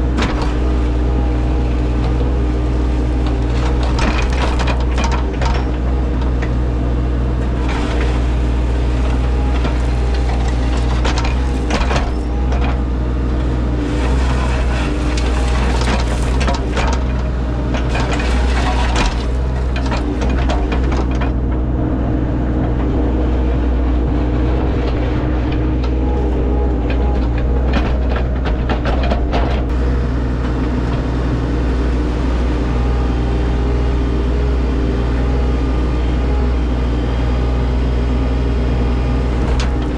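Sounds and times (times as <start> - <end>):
diesel engine running: 0.0 - 39.9
scraping and knocking of ground: 13.8 - 21.4.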